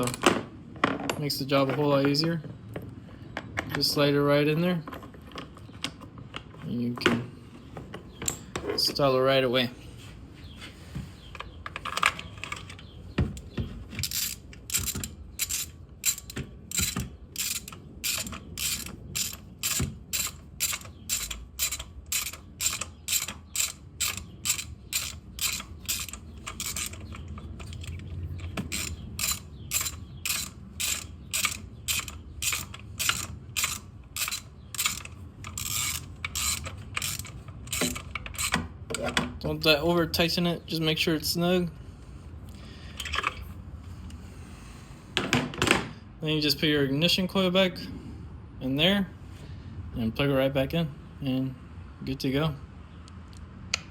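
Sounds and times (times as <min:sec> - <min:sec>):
ratchet wrench clicking: 0:14.0 - 0:38.6.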